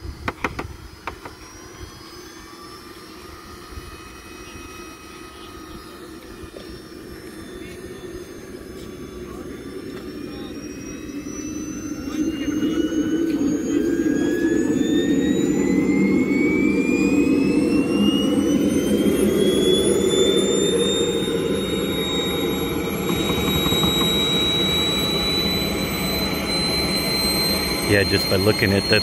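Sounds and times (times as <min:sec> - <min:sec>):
turbine whine rising: 0:00.0 - 0:29.0.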